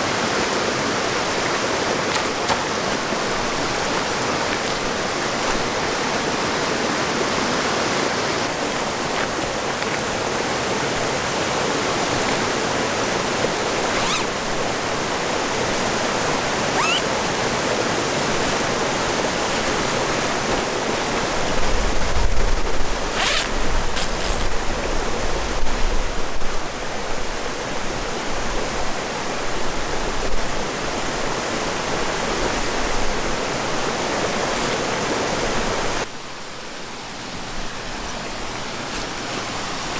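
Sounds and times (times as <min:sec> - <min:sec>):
river water rushing: 0:00.0 - 0:22.0, 0:30.8 - 0:39.9.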